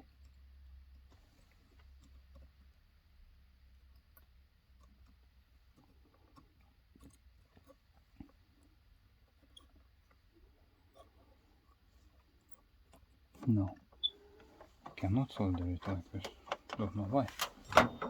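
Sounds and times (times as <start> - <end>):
small clicks and taps of tools: 3.8 - 18.0.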